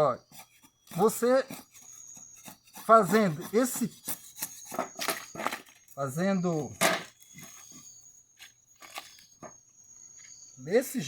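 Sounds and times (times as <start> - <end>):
machete shaving wood: 0.2 - 6.0, 8.4 - 9.3.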